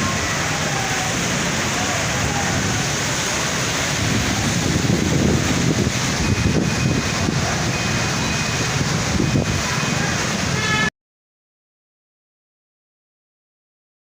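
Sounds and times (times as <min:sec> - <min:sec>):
wind buffeting microphone: 0:00.0 - 0:10.7
heavy rain hissing: 0:00.0 - 0:10.9.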